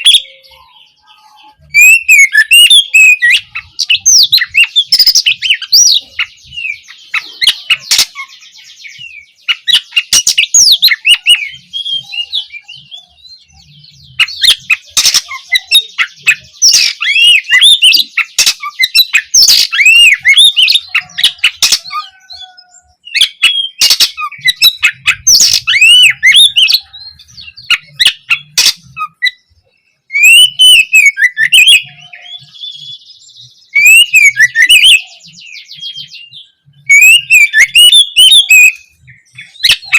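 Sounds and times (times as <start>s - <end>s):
magpie-robin singing: 0.0s - 39.9s.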